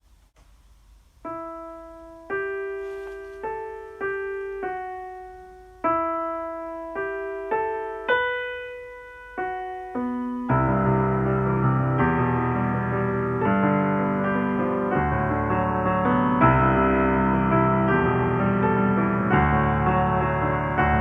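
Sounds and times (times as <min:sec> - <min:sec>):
slow piano melody: 0:00.7 - 0:21.0.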